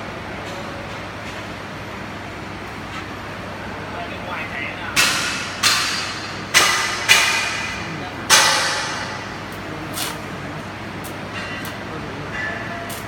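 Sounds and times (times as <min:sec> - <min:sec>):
metal clanging on steel: 0:05.0 - 0:10.2, 0:11.0 - 0:13.0.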